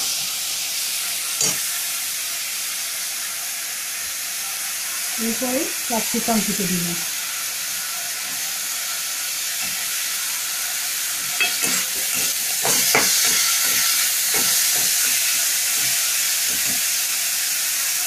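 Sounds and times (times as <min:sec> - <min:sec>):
vegetables sizzling in a pan: 0:00.0 - 0:18.0
spatula stirring vegetables: 0:04.7 - 0:17.9.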